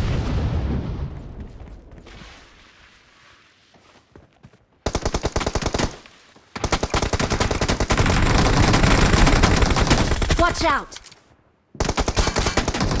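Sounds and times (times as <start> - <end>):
automatic gunfire bursts: 11.8 - 13.0.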